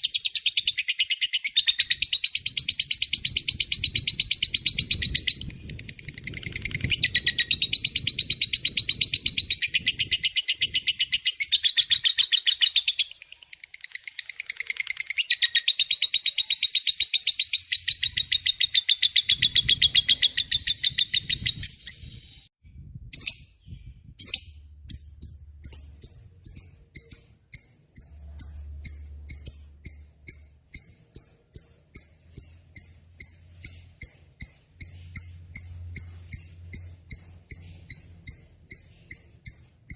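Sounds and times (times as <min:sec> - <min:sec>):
lovebird chattering song: 0:00.0 - 0:22.5, 0:23.2 - 0:39.9
sharp bird chirps: 0:00.0 - 0:22.5, 0:23.1 - 0:39.9.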